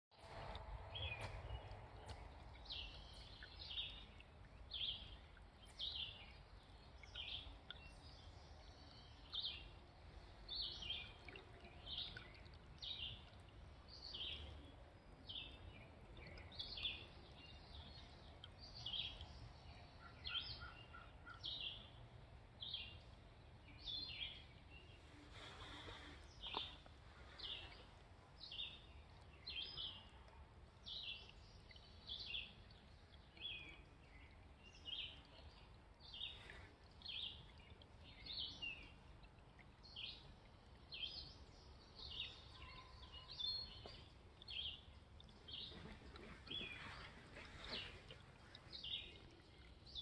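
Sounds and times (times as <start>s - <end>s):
faint low rumble: 0.1s - 20.0s.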